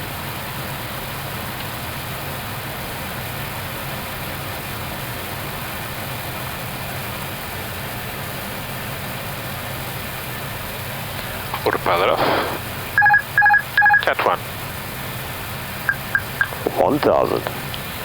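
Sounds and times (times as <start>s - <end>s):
aircraft engine noise: 9.1s - 18.0s.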